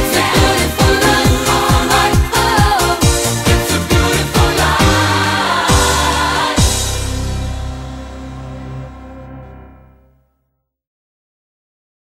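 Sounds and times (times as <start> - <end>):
deep drum hit: 0.4 - 9.6.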